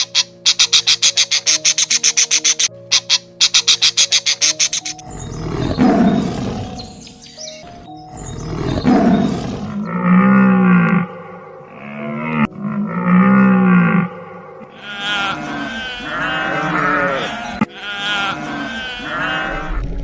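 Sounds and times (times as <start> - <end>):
drawn-out pitched animal calls: 0.0 - 7.0, 8.2 - 19.8
rough noisy animal calls: 0.0 - 7.0, 8.2 - 19.8
rapid chirping animal calls: 0.0 - 9.8, 14.7 - 19.5
background music: 0.0 - 20.0.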